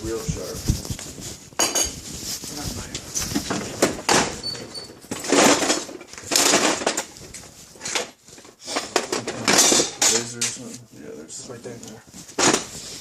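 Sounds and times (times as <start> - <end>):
cutlery clattering in a drawer: 4.6 - 7.1, 7.8 - 10.6.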